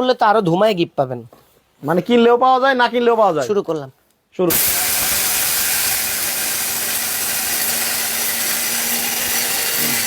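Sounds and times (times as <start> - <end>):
mixer grinder whirring: 4.5 - 10.0.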